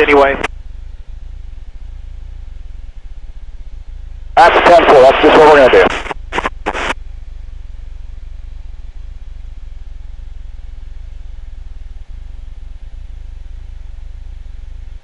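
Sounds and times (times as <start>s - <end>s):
faint intercom hiss: 0.0s - 0.5s, 4.4s - 7.0s
aircraft engine drone: 0.0s - 15.0s.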